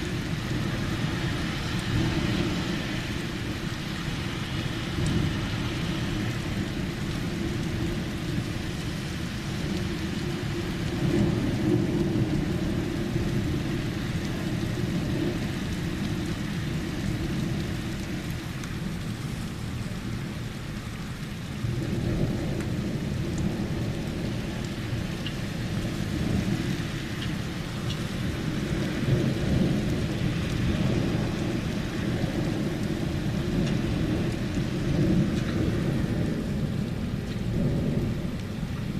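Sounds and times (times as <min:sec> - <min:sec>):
rain falling: 0:00.0 - 0:38.9
rolling thunder: 0:28.0 - 0:38.9.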